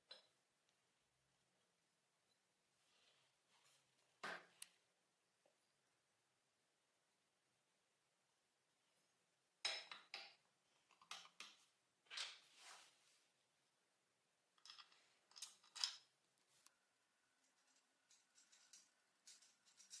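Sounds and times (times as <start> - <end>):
metal tools clicking and clinking: 17.6 - 20.0.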